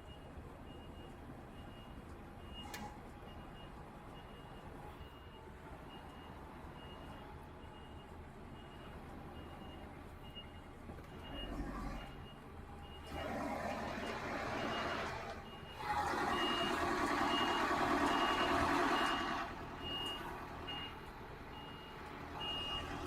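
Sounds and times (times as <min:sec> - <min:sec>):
truck reversing alarm beeping: 0:00.0 - 0:23.0
diesel engine running: 0:11.1 - 0:23.0.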